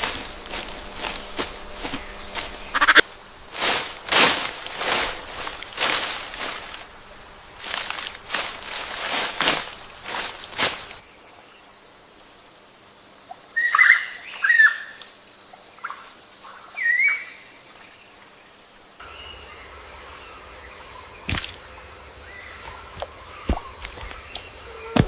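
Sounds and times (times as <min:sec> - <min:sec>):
steady hiss: 0:00.0 - 0:13.6
bird chirping: 0:01.2 - 0:03.0.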